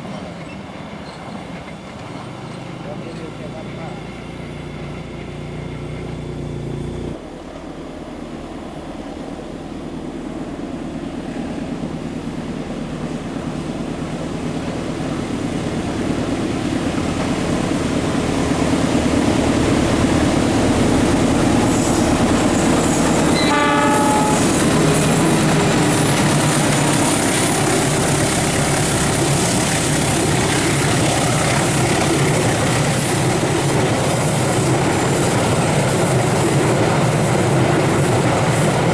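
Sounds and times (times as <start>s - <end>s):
train wheels on rails: 0.0s - 38.9s
train horn blast: 23.3s - 25.2s.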